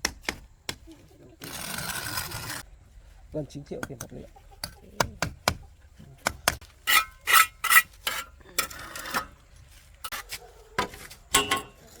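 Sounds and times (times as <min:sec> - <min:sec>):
rasping scrapes: 0:01.4 - 0:02.6, 0:06.8 - 0:11.2.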